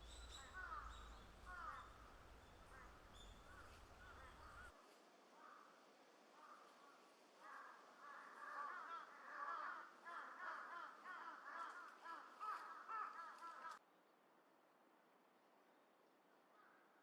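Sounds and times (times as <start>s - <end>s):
flock of birds calling: 0.0s - 4.7s.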